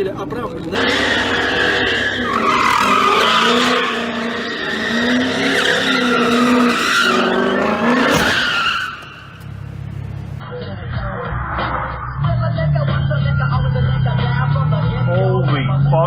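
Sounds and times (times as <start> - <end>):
car engine running: 0.0 - 10.4
car tyres squealing: 0.6 - 10.4.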